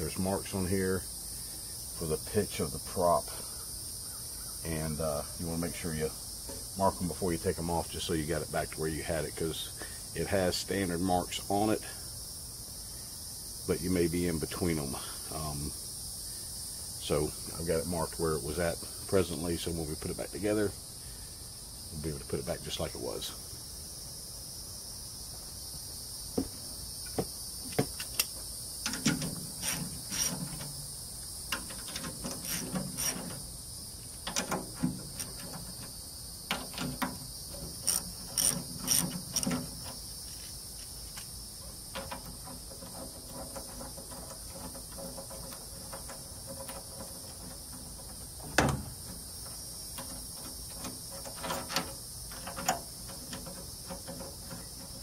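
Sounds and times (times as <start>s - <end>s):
crickets chirring: 0.0s - 55.0s
ratchet clicks: 28.0s - 30.8s, 31.5s - 33.4s, 34.2s - 40.0s.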